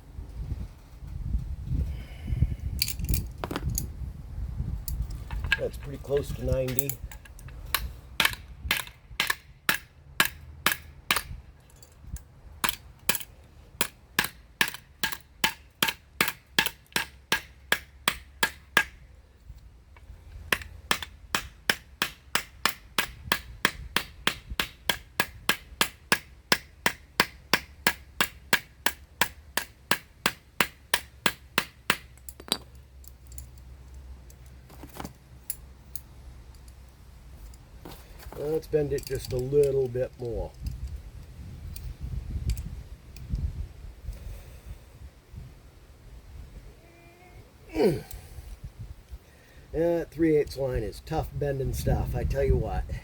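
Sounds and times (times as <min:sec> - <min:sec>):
hand hammering blows: 0:13.8 - 0:19.0, 0:20.5 - 0:32.7.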